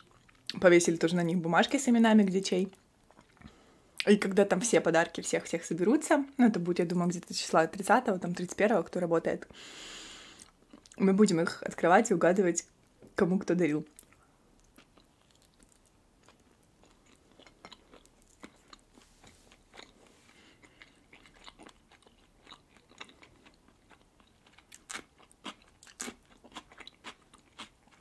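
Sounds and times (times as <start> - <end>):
cucumber crunching: 14.0 - 28.0
wet chewing clicks: 20.6 - 28.0.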